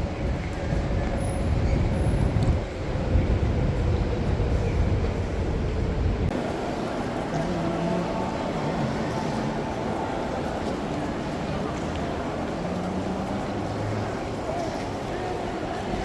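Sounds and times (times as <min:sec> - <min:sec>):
train rumbling in motion: 0:00.0 - 0:16.0.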